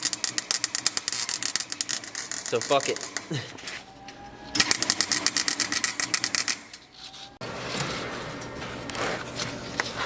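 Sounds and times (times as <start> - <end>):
welder crackling: 0.0 - 3.4.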